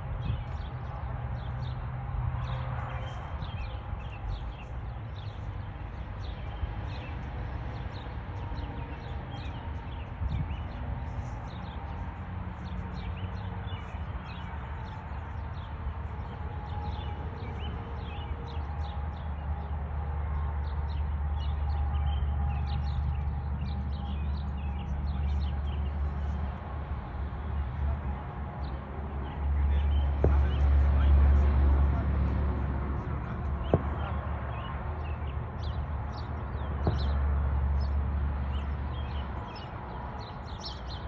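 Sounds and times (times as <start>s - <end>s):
birds chirping: 2.4s - 19.7s, 33.0s - 41.0s.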